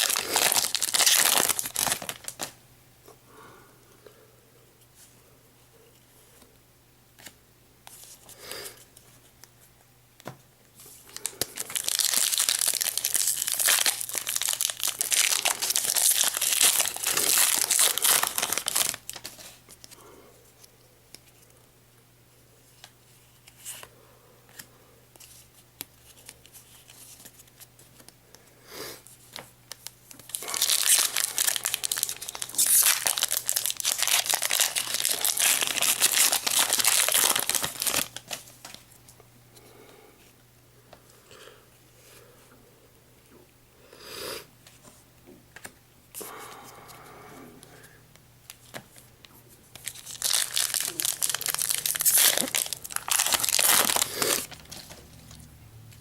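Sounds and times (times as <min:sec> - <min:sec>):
foil wrapper tearing and crinkling: 0:00.0 - 0:02.6, 0:11.1 - 0:19.6, 0:29.7 - 0:38.8, 0:49.7 - 0:55.4.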